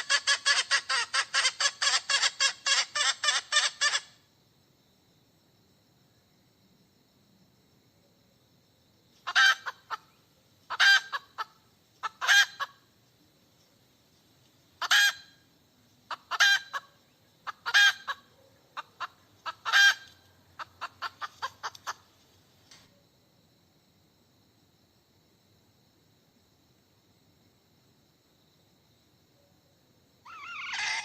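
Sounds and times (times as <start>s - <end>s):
hen cackling: 0.0s - 4.2s, 9.2s - 12.8s, 14.8s - 15.4s, 16.1s - 22.1s, 30.2s - 31.0s.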